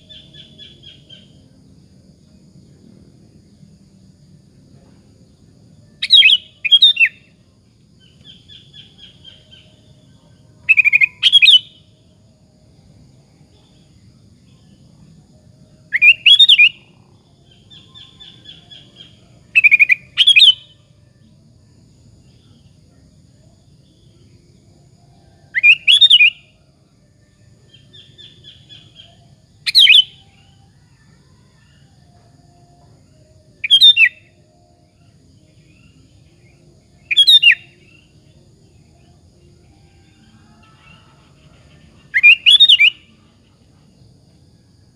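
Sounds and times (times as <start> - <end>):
bulbul whistled song: 6.0 - 7.4, 10.6 - 11.9, 15.9 - 16.9, 17.5 - 20.8, 25.5 - 26.6, 27.7 - 30.6, 33.5 - 38.2, 42.0 - 43.4.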